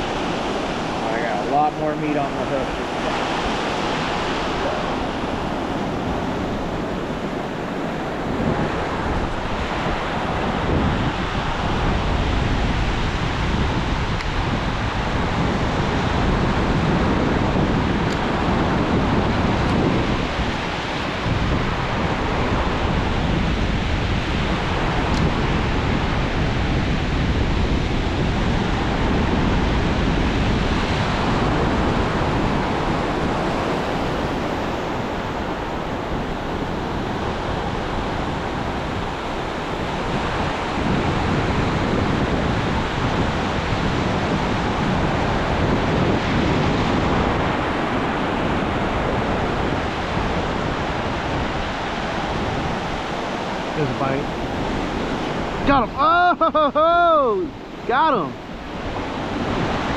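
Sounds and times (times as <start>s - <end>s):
ocean surf breaking: 0.0s - 59.9s
wind rumbling on microphone: 0.0s - 59.9s.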